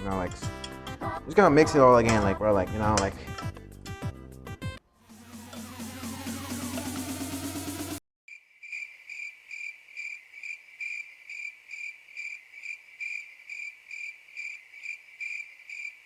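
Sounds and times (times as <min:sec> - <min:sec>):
electronic music: 0:00.0 - 0:08.0
cricket chirping: 0:08.3 - 0:16.0.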